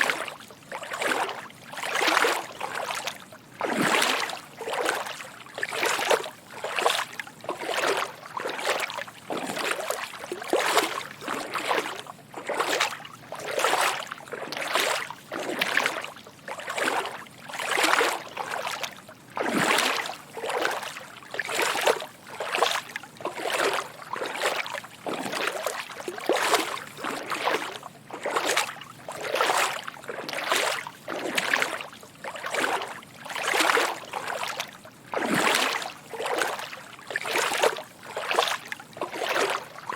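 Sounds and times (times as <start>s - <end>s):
footsteps wading through water: 0.0s - 39.9s.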